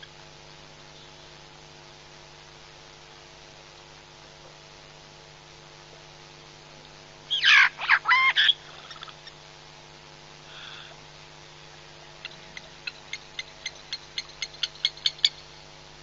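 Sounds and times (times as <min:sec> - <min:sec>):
electrical hum and hiss: 0:00.0 - 0:16.0
harsh bird calls: 0:07.3 - 0:09.4.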